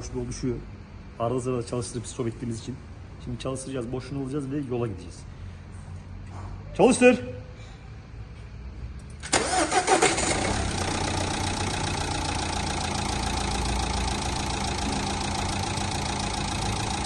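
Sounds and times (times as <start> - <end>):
diesel engine starting and idling: 9.2 - 17.0.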